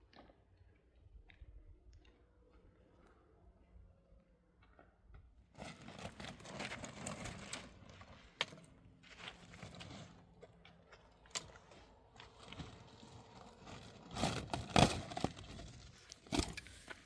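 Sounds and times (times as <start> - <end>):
rustling and scraping: 5.5 - 17.0.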